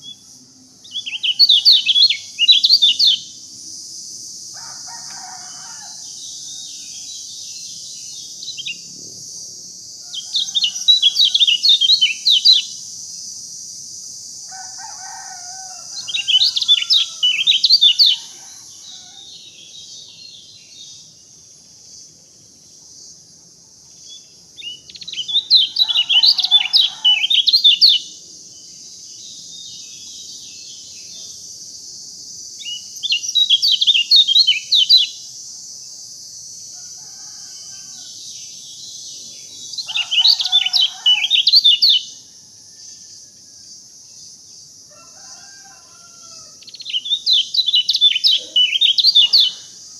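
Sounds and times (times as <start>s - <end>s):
steady high-pitched hiss: 0.0s - 49.9s
lower bird calls: 46.2s - 49.8s.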